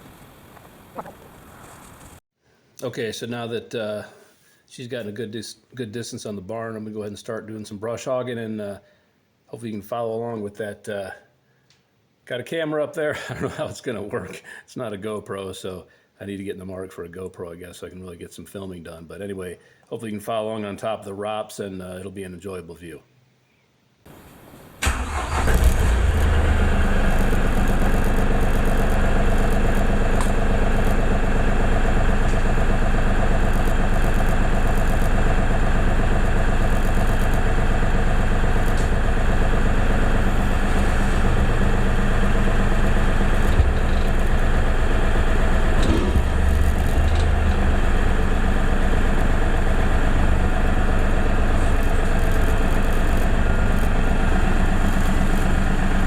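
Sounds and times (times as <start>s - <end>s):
tractor diesel engine running: 24.1s - 56.0s.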